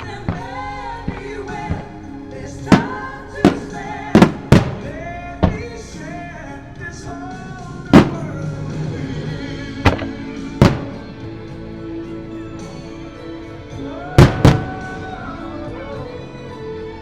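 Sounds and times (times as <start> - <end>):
fireworks booming: 0.0 - 6.3, 7.7 - 11.6, 14.2 - 15.2
ballad with singing: 0.0 - 17.0.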